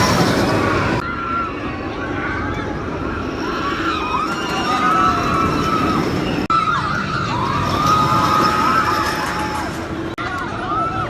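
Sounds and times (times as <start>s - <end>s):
coaster train rumbling on track: 0.0s - 11.0s
riders screaming: 3.2s - 11.0s.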